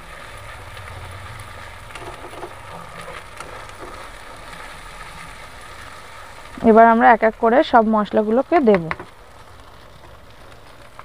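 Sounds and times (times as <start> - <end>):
paste sizzling in oil: 0.0 - 11.0
metal spatula scraping pan: 1.8 - 5.3.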